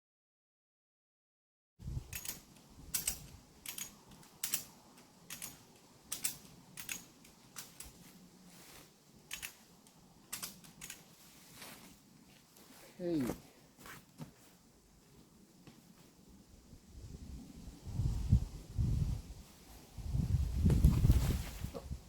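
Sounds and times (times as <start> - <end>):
sharp clicks: 2.1 - 8.0, 9.3 - 11.0.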